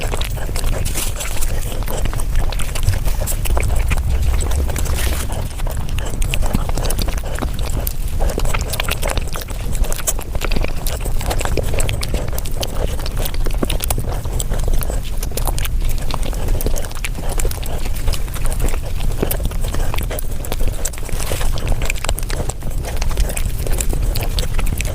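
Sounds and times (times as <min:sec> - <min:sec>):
rapid chewing mouth noises: 0:00.0 - 0:24.9.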